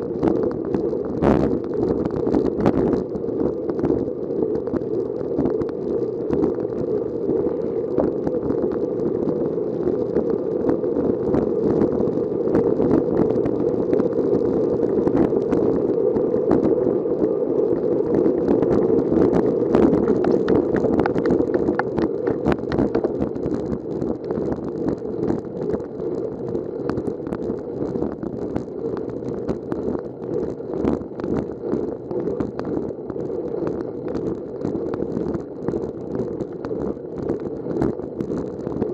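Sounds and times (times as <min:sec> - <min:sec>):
wind rushing over microphone: 0:00.0 - 0:38.9
bicycle ticking and rattling: 0:20.0 - 0:23.3.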